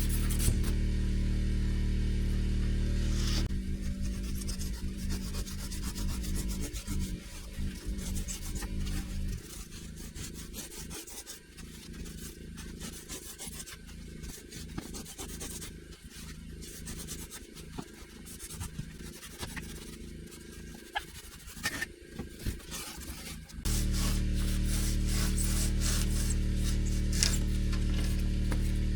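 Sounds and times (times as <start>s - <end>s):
foam board rasping strokes: 0.0s - 0.8s, 3.1s - 28.9s
low steady hum: 0.0s - 28.9s.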